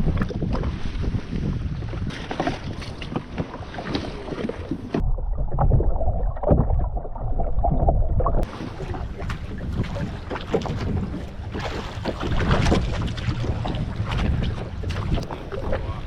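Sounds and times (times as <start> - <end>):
water lapping against hull: 0.0 - 16.0
wind buffeting microphone: 0.0 - 16.0
small splashes: 8.4 - 16.0.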